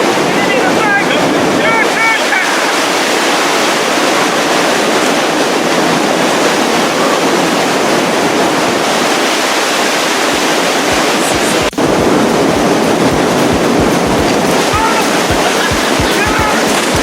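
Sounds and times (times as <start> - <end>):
rushing white water: 0.0 - 17.0.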